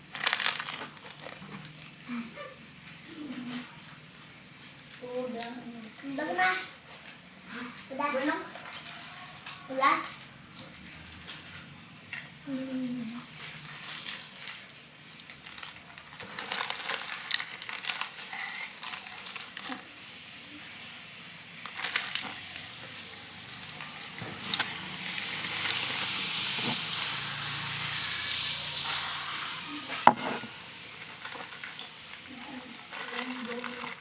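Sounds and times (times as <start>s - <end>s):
crunching crispy snack: 0.0s - 2.0s, 12.5s - 34.0s
crackly rustle: 0.0s - 28.5s, 29.8s - 34.0s.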